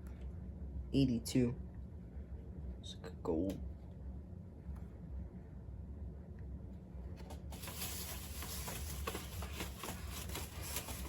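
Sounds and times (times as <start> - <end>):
steady low hum: 0.0 - 11.0
packaging rustling: 7.4 - 11.0.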